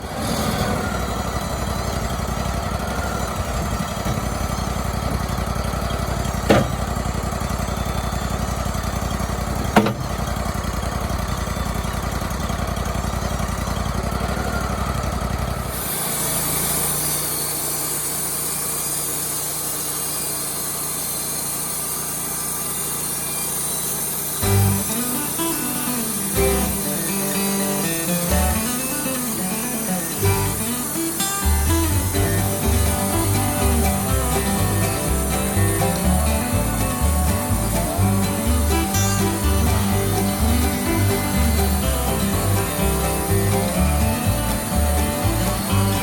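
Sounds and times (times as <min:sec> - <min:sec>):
band sawmill running: 0:00.0 - 0:46.0
sharp knocks: 0:06.4 - 0:07.0, 0:09.6 - 0:10.2
high hiss: 0:15.7 - 0:46.0.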